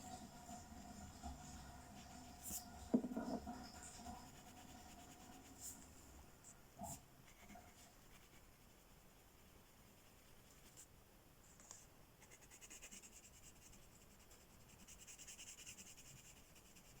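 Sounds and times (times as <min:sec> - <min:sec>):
pen scratching on paper: 0:02.0 - 0:05.8, 0:06.9 - 0:10.9, 0:12.2 - 0:17.0.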